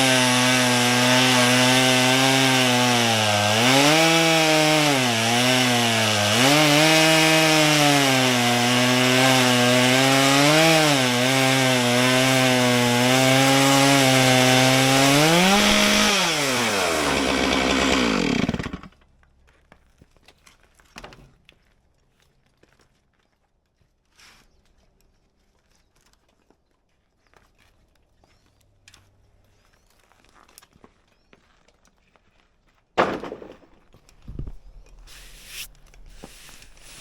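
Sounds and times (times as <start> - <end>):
chainsaw cutting log: 0.0 - 19.0, 34.9 - 37.0.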